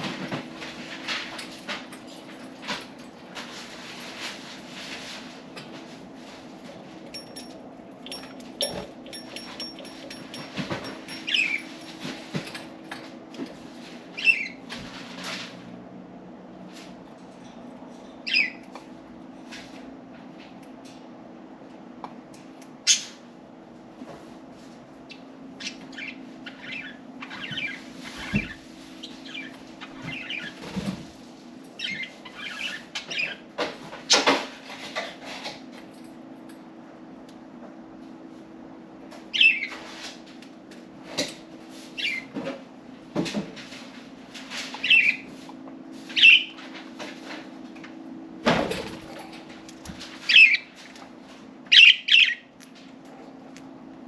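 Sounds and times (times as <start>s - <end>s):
steady low hum: 0.0s - 34.0s
budgerigars chirping: 51.7s - 52.4s.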